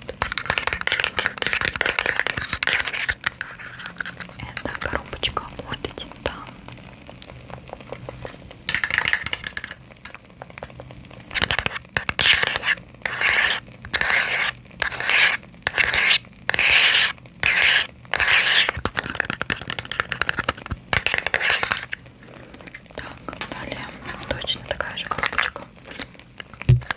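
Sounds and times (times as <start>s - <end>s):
fingernails scratching a small box: 0.2s - 4.4s, 11.3s - 18.8s.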